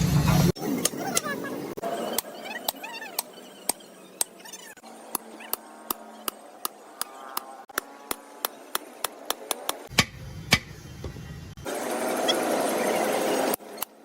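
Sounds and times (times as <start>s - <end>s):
hammer striking metal: 9.9s - 10.8s.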